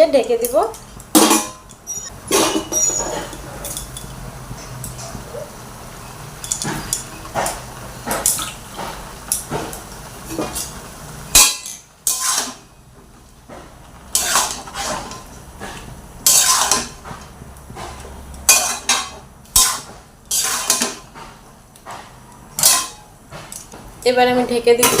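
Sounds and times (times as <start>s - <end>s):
spatula scraping a cooking pan: 6.6s - 12.8s, 13.5s - 21.4s.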